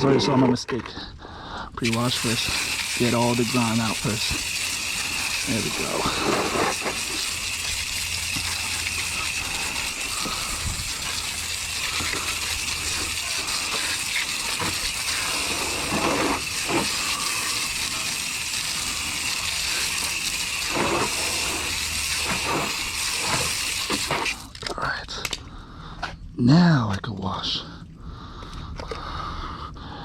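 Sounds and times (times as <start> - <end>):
hose spraying water on wheel: 1.8 - 24.6.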